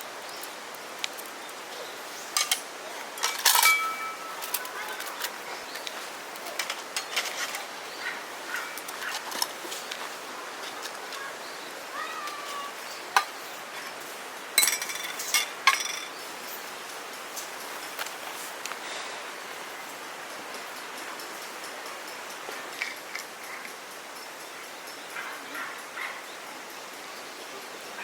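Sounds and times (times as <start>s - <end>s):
outdoor hiss: 0.0s - 28.0s
clicks and clinks: 2.4s - 7.7s, 14.6s - 16.6s.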